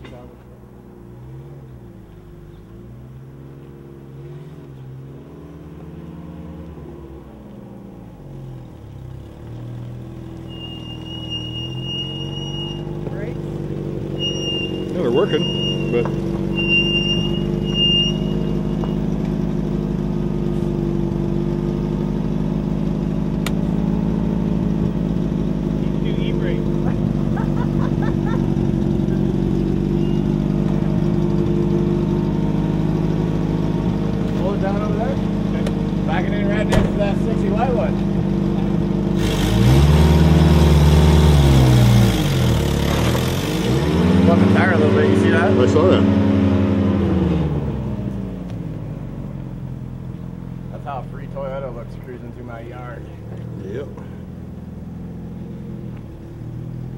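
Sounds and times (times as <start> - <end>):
pickup engine idling: 7.0 - 39.5, 47.8 - 56.9
thin high squeal: 10.5 - 12.9, 14.1 - 18.8.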